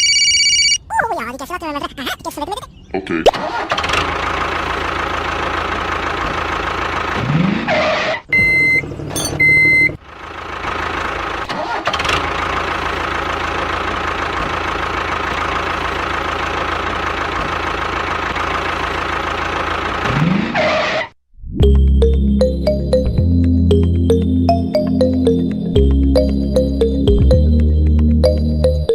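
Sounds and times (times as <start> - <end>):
tractor engine running: 3.6 - 7.3, 9.1 - 20.3
horn beeps: 8.4 - 10.0.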